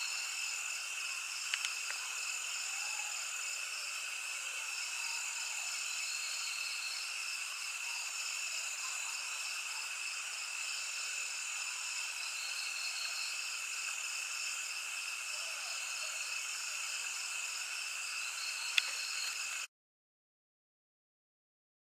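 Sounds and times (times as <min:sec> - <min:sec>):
insects droning: 0:00.0 - 0:19.7
sharp click: 0:01.5 - 0:02.0.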